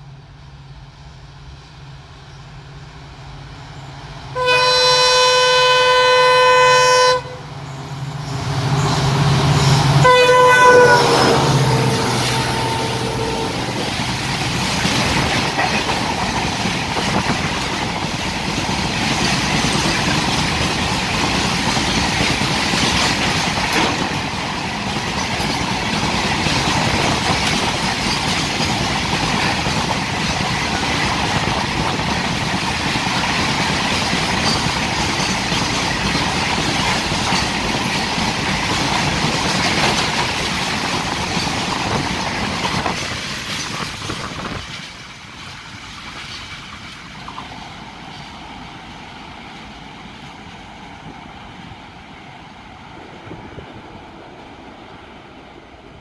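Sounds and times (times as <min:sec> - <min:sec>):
freight train wheels clattering: 0:07.7 - 0:49.0.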